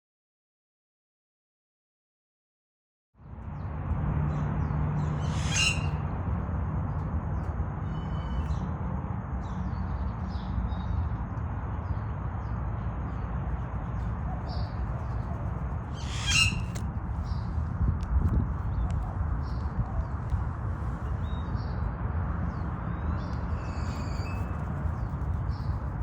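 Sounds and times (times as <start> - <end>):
low outdoor rumble: 3.2 - 26.0
small bird chirps: 4.6 - 6.0, 14.0 - 17.5, 22.5 - 26.0
harsh loud bird calls: 5.0 - 6.0, 15.8 - 17.4.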